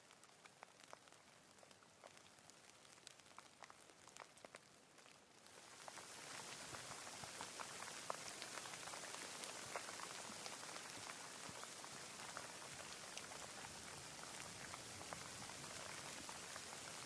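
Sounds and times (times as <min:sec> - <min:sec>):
raindrops pattering close by: 0:00.0 - 0:17.0
rain hissing: 0:05.4 - 0:17.0.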